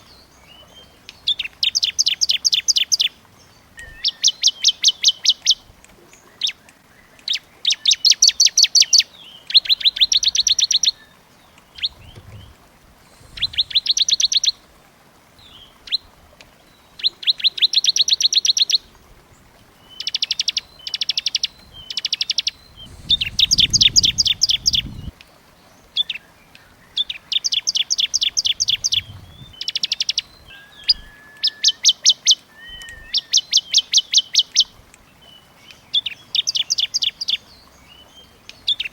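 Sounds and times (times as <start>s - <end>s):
songbird rapid trills: 6.4s - 14.7s, 16.9s - 25.2s, 26.0s - 35.4s.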